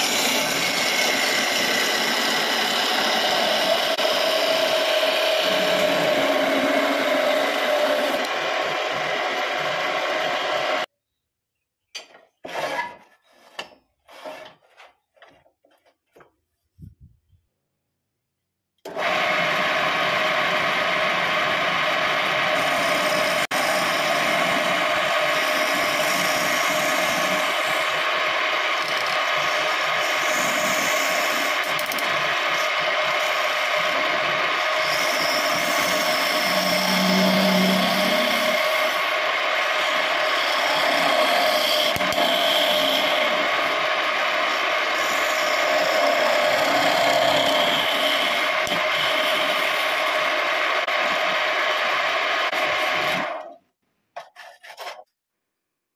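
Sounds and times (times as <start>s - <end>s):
wood lathe whirring and rattling: 0.0s - 10.9s, 18.9s - 53.5s
wood scraping and rubbing: 54.2s - 55.1s.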